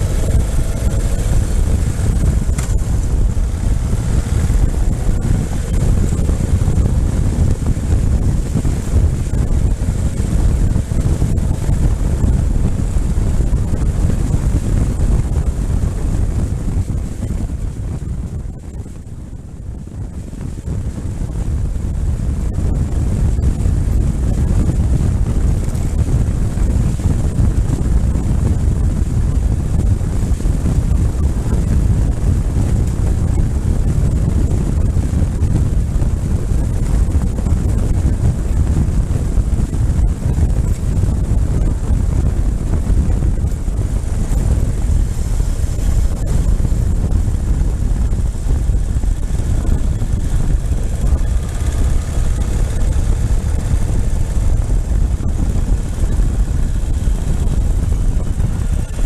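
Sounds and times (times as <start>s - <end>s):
motorcycle engine: 0.0s - 59.0s
wind buffeting microphone: 0.0s - 59.0s.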